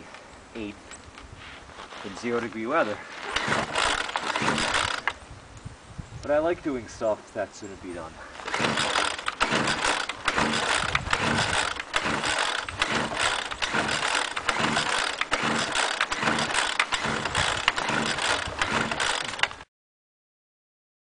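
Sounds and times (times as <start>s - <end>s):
leaf blower engine running unevenly: 3.1s - 5.2s, 8.4s - 19.6s.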